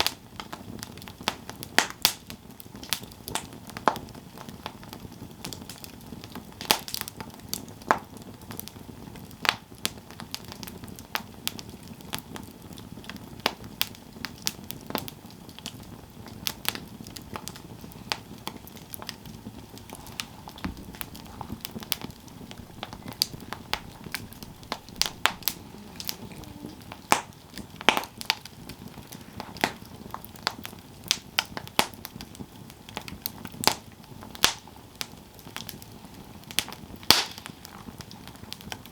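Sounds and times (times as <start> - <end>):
low hiss of burning: 0.0 - 38.9
campfire crackling: 2.8 - 38.9.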